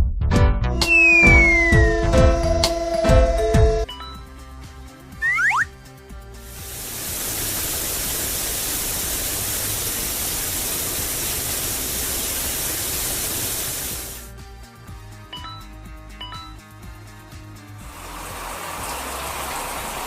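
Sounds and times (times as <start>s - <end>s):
soft background music: 1.4s - 8.4s, 14.1s - 20.0s
cartoon rushing hiss: 5.2s - 5.7s, 6.5s - 14.3s.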